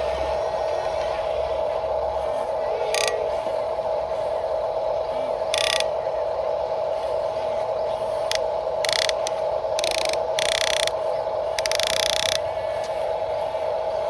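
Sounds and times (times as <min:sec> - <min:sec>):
plastic gears whirring: 0:02.8 - 0:03.2, 0:05.5 - 0:05.9, 0:08.2 - 0:12.5.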